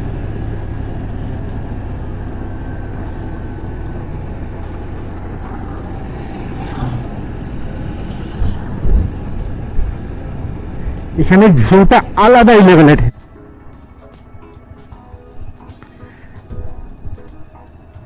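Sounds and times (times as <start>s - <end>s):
motorcycle engine running: 0.0s - 11.2s
wind noise: 0.0s - 12.2s
passing vehicle: 0.0s - 13.1s.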